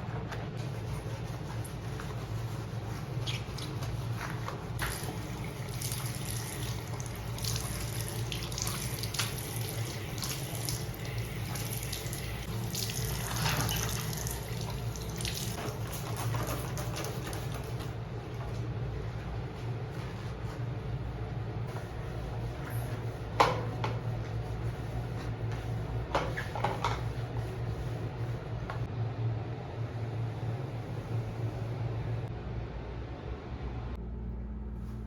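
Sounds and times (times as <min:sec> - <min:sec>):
tap water splashing in sink: 0:04.8 - 0:17.1.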